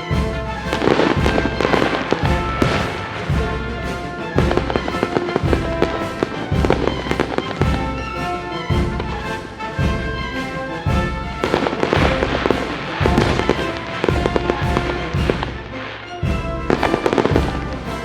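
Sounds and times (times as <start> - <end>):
music with deep beat: 0.0 - 8.0
fireworks bursting and crackling: 4.6 - 7.7, 11.5 - 15.5.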